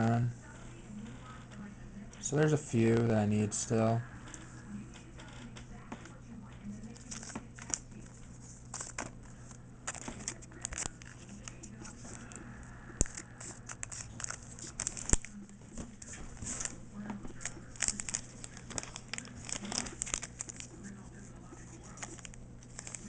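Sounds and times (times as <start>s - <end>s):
foil wrapper crinkling and tearing: 6.9s - 12.4s, 13.0s - 23.0s.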